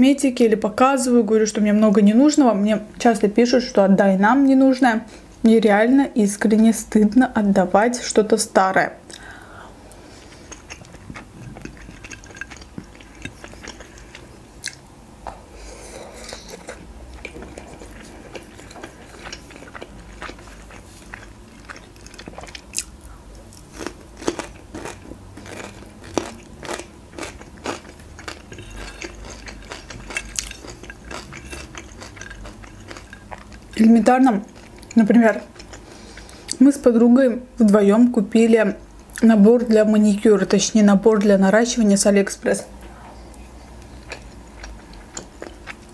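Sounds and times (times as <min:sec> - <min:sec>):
wet chewing mouth clicks: 0:10.3 - 0:14.8.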